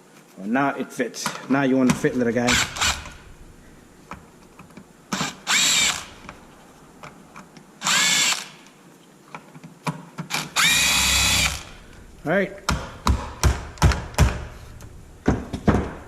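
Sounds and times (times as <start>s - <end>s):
cordless power driver whining: 2.5s - 3.4s, 5.1s - 6.4s, 7.8s - 8.7s, 10.3s - 12.1s.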